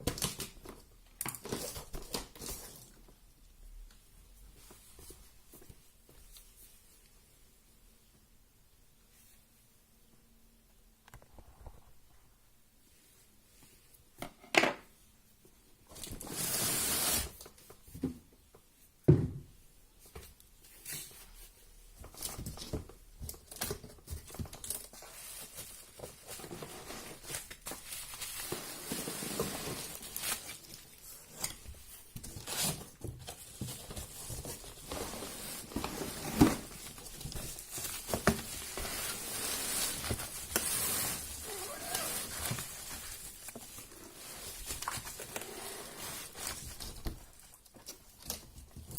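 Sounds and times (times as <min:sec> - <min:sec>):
packaging tearing and rustling: 0:23.5 - 0:48.5.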